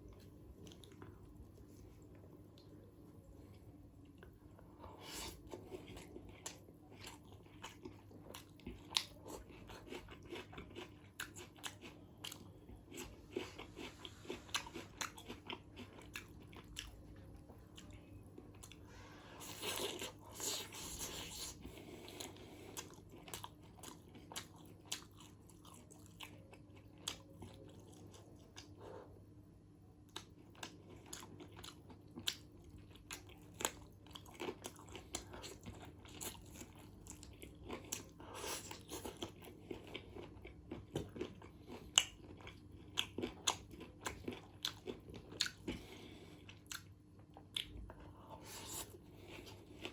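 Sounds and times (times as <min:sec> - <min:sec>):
person chewing food: 0:00.0 - 0:29.2, 0:29.9 - 0:49.9.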